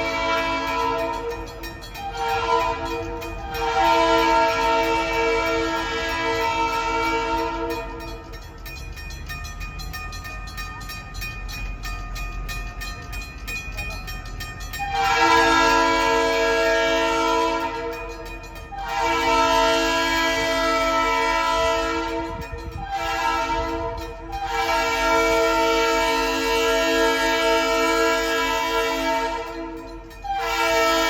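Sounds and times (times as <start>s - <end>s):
locomotive air horn blasts: 0.0s - 8.4s, 14.8s - 31.0s
crossing bell dinging: 0.0s - 31.0s.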